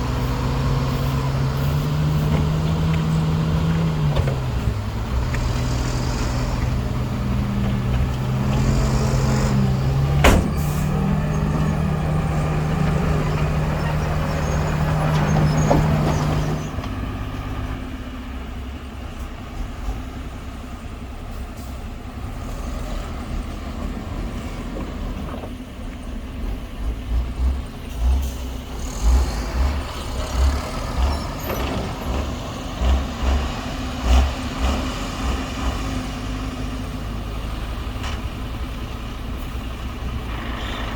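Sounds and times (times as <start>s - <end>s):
diesel machinery engine drone: 0.0s - 40.9s
low thuds: 6.6s - 12.2s.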